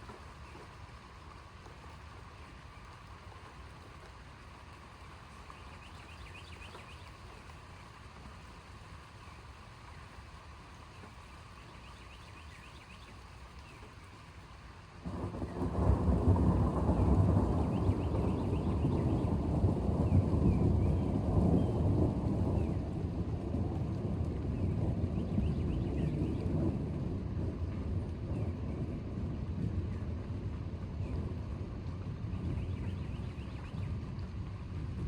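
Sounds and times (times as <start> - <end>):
light rain hiss: 0.0 - 35.0
low thunder rumble: 15.1 - 35.0.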